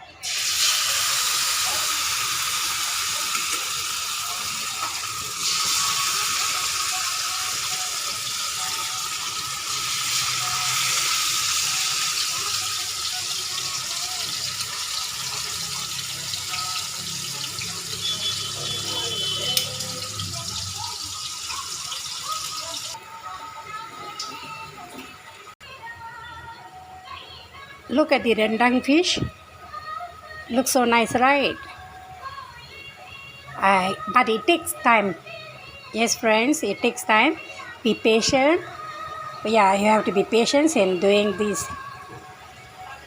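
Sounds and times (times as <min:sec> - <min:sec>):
fish sizzling in hot oil: 0:00.2 - 0:23.0.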